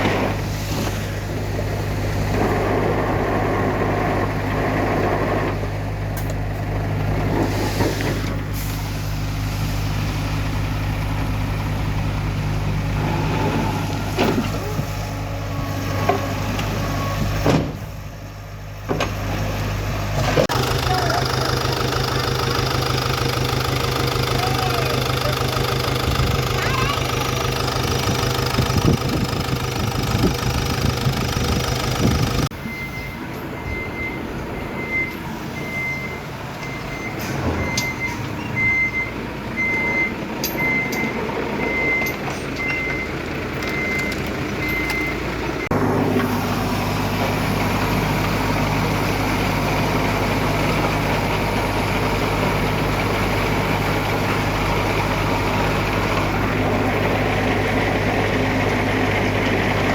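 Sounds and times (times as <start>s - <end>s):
diesel engines of machinery: 0.0s - 59.9s
reversing alarm beeping: 20.5s - 45.7s.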